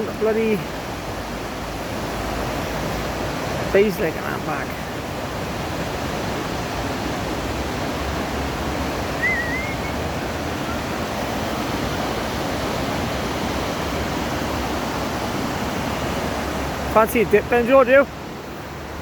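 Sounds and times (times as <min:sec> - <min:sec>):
river water rushing: 0:00.0 - 0:19.0
high warbling chirp: 0:09.2 - 0:10.1.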